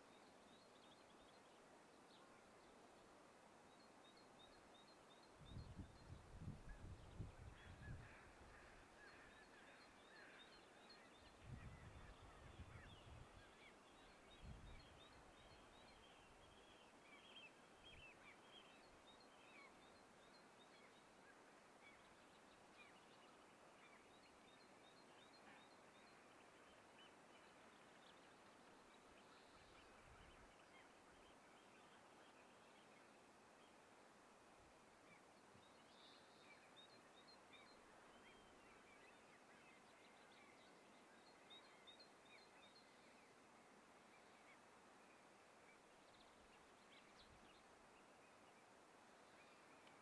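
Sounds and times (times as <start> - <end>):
faint birds chirping: 0.0 - 50.0.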